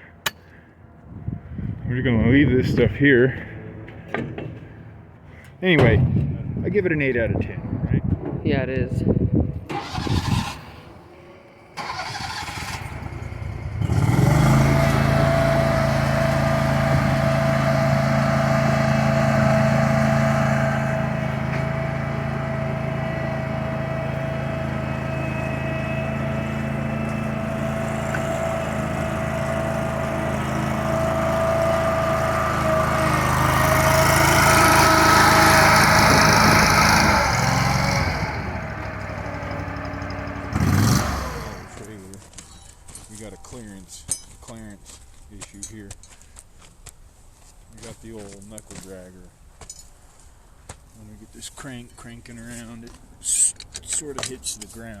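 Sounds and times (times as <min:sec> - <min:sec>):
small loader engine running: 0:09.7 - 0:42.0.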